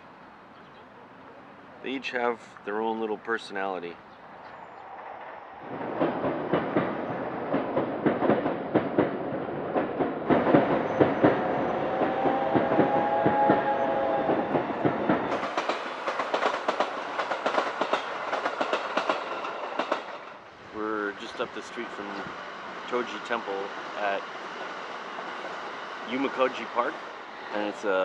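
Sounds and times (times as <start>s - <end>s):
train wheels clattering on track: 5.7s - 20.5s.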